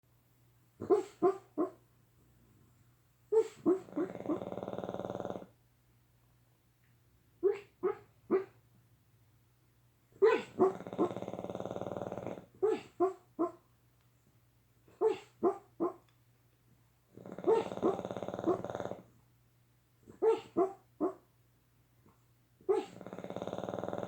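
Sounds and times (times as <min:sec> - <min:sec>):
dog barking: 0:00.8 - 0:01.8, 0:07.4 - 0:08.6, 0:10.2 - 0:10.8, 0:12.6 - 0:13.6, 0:15.0 - 0:16.0, 0:20.2 - 0:21.2
dog growling: 0:03.4 - 0:05.5, 0:10.2 - 0:13.5, 0:17.1 - 0:19.1, 0:22.7 - 0:24.0.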